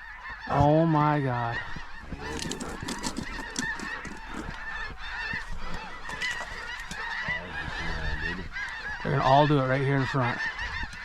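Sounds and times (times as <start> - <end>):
geese honking: 0.0 - 11.0.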